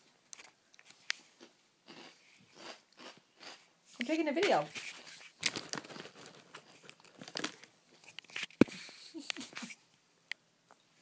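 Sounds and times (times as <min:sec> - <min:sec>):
child chewing crunchy snack: 0:00.3 - 0:03.7, 0:04.8 - 0:09.8.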